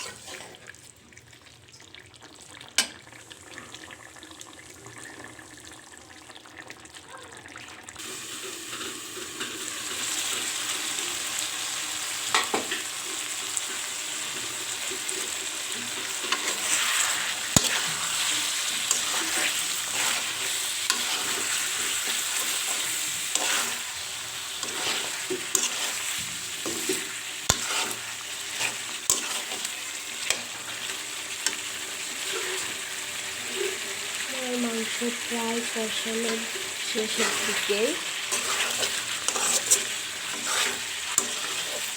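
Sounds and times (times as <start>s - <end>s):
spatula scraping a pot: 0.0s - 0.6s, 15.1s - 34.0s, 36.4s - 41.9s
food sizzling in oil: 0.0s - 41.9s.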